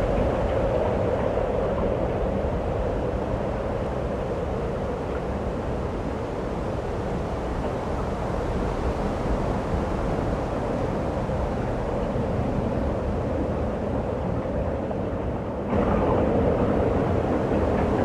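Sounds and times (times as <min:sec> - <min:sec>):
snowstorm wind rushing: 0:15.7 - 0:18.0.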